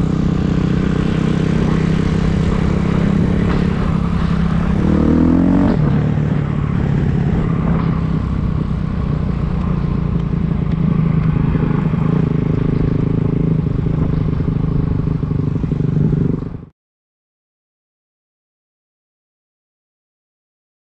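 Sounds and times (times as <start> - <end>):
dirt bike engine running: 0.0 - 16.7.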